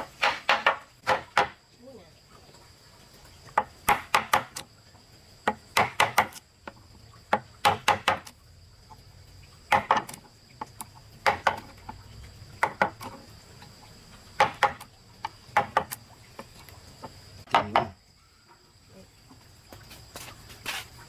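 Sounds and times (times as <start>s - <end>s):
tool striking wood: 0.0s - 1.6s, 3.6s - 4.6s, 5.5s - 6.4s, 7.3s - 8.3s, 9.7s - 10.2s, 11.2s - 11.6s, 14.4s - 14.9s, 15.5s - 16.0s, 17.5s - 18.0s
high insect drone: 0.0s - 21.0s.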